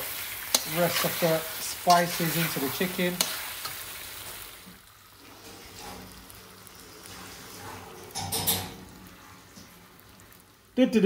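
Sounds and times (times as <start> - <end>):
food frying in a pan: 0.0 - 11.0
metal spoon stirring and scraping: 0.4 - 4.4.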